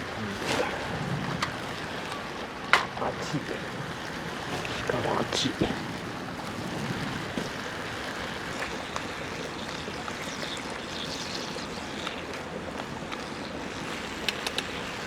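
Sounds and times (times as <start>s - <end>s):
faint crackles: 0.0s - 15.0s.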